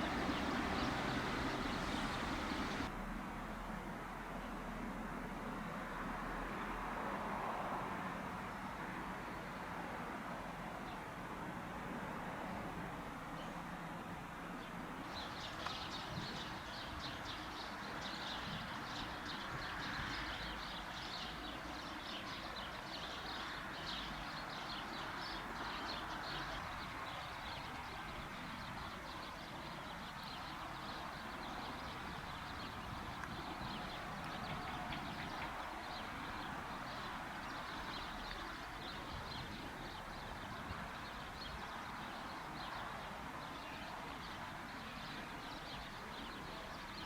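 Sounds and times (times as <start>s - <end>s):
small birds chirping: 0.0s - 2.9s.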